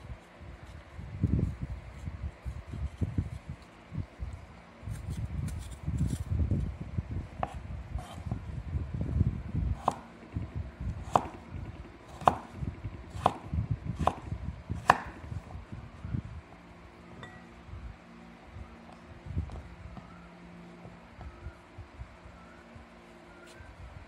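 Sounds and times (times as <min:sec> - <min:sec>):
knife cutting melon: 0:04.9 - 0:06.7, 0:07.4 - 0:08.4, 0:11.0 - 0:15.4.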